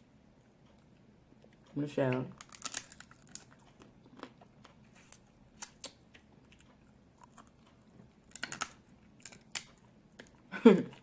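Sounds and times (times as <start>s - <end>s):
crab shell cracking: 2.3s - 4.4s, 8.2s - 9.8s
person chewing: 2.3s - 11.0s.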